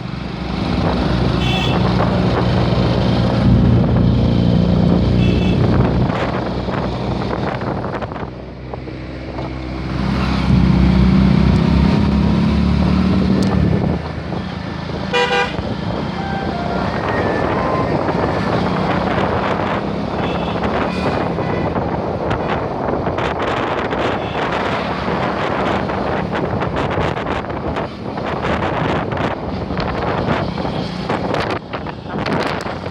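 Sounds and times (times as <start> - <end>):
wind on microphone: 0.4 - 32.9
vehicle horn toot: 1.4 - 1.9, 5.2 - 5.8, 15.1 - 18.6, 20.2 - 21.8.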